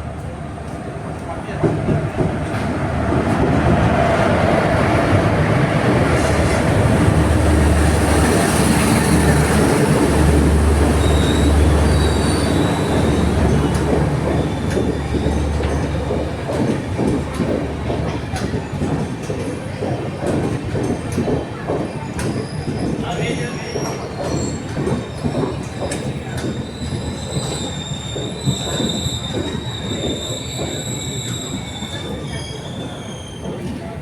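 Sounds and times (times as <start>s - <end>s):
train wheels rumbling on rails: 0.0s - 34.0s
sharp rail clicks: 5.5s - 23.0s
high-pitched wheel squeals: 10.9s - 13.6s, 26.4s - 33.8s.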